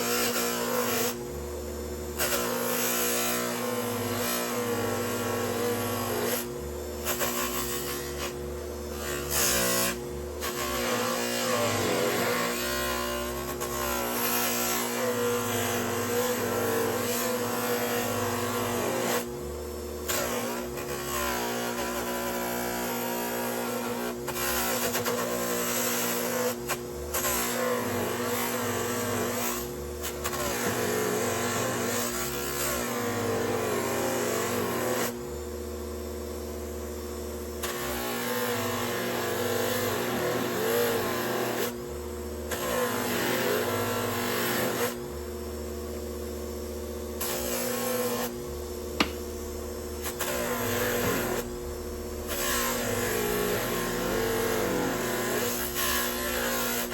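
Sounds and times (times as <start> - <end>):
power tool motor running: 0.0 - 56.9
loud rasping on metal: 2.2 - 19.3, 50.0 - 51.6, 52.3 - 56.9.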